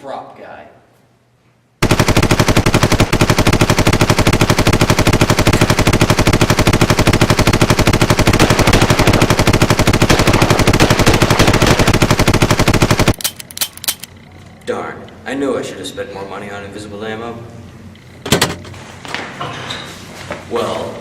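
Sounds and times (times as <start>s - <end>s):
machine gun automatic fire: 1.8s - 14.1s
single gunshots: 8.3s - 13.2s.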